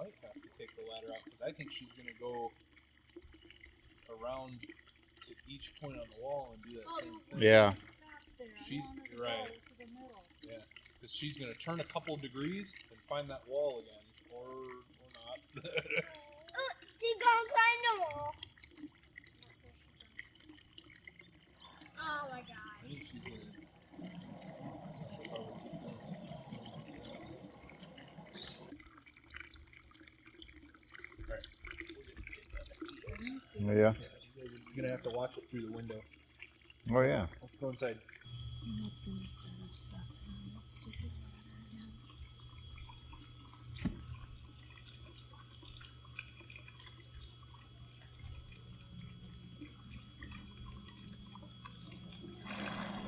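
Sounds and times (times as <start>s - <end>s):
water churning and splashing: 0.0s - 38.4s, 39.1s - 53.0s
steady low hum: 36.8s - 53.0s.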